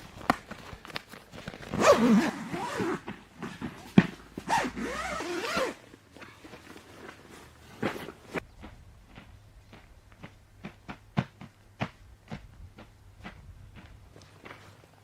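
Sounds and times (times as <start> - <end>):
zipper being pulled: 1.6 - 3.2, 4.4 - 5.8.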